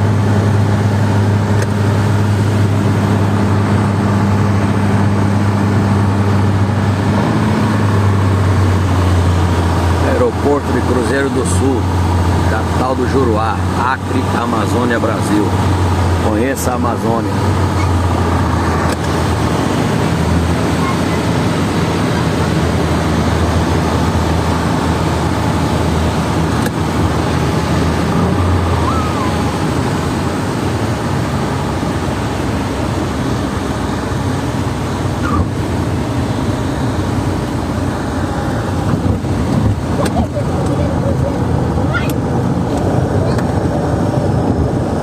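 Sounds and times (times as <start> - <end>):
higher engine tone: 0.0 - 45.0
jet engines droning in cabin: 0.0 - 45.0
rushing air: 17.4 - 45.0.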